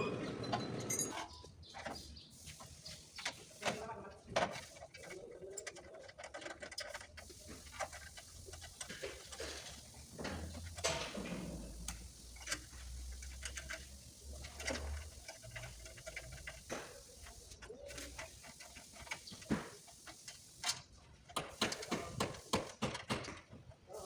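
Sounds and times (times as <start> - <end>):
hand tools tapping car body: 18.0 - 23.7.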